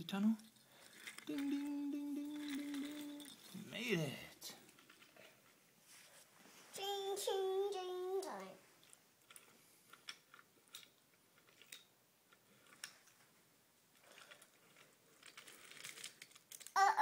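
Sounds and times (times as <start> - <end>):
toy train pieces clicking: 0.4 - 3.6, 8.8 - 13.1, 14.0 - 17.0
faint rustle: 4.6 - 10.1.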